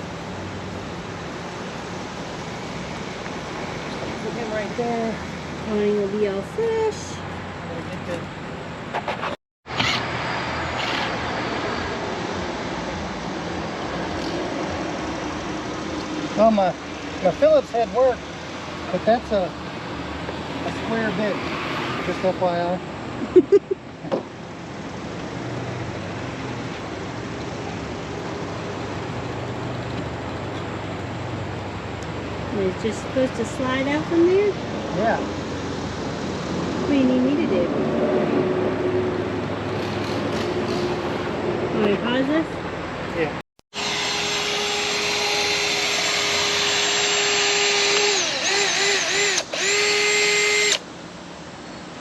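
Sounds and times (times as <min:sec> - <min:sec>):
cordless drill whining: 0:43.8 - 0:50.8
motor humming: 0:43.8 - 0:50.8.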